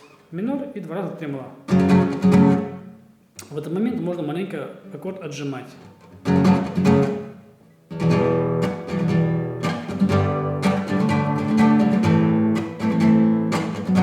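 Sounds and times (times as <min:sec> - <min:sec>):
acoustic guitar strumming chords: 0:01.6 - 0:03.2, 0:06.0 - 0:14.0.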